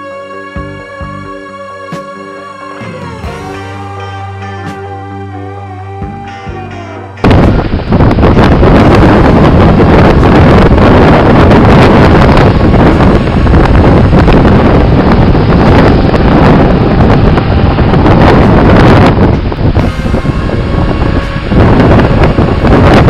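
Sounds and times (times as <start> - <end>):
storm wind buffeting microphone: 7.2 - 23.0.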